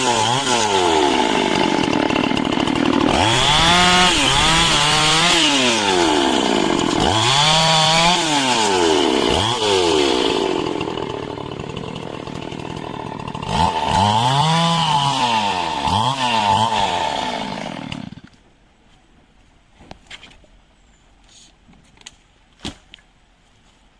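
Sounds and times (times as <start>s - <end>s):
chainsaw cutting wood: 0.0s - 18.4s.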